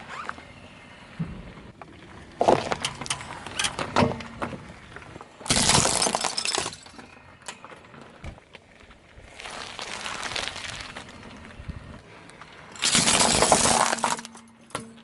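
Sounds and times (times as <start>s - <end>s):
tyre crushing brittle objects: 5.4s - 6.9s, 12.8s - 14.4s.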